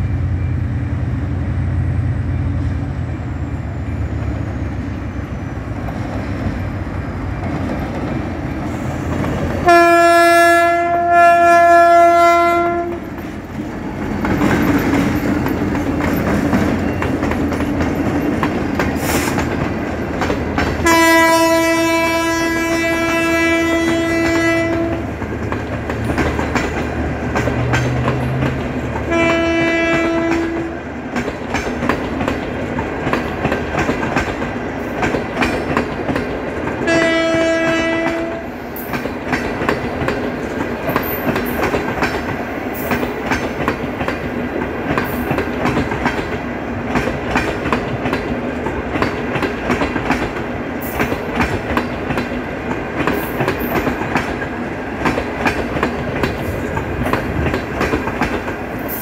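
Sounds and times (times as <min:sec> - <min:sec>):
wheels clacking over rail joints: 0:05.6 - 0:59.0
train horn blasts: 0:09.6 - 0:13.1, 0:20.8 - 0:25.2, 0:29.1 - 0:30.9, 0:36.8 - 0:38.7.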